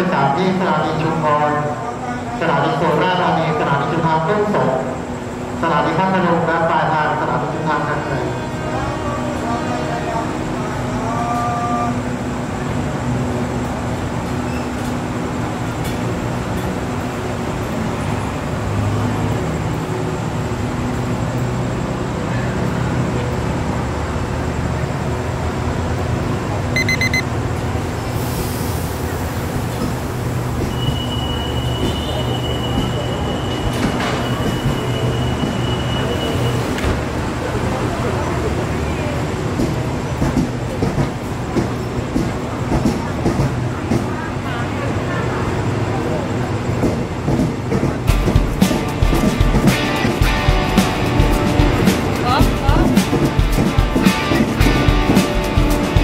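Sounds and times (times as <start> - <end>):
train carriages rolling past: 0.0 - 56.0
high wheel squeal: 30.6 - 36.7.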